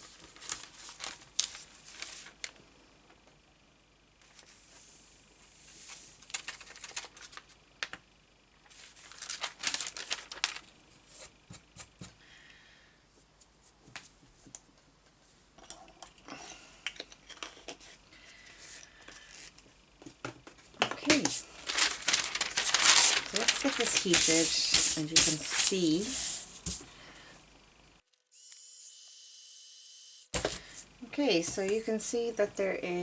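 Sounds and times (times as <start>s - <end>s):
paper rustling and crinkling: 0.0s - 2.6s, 5.8s - 8.0s, 8.6s - 11.4s, 20.7s - 26.9s.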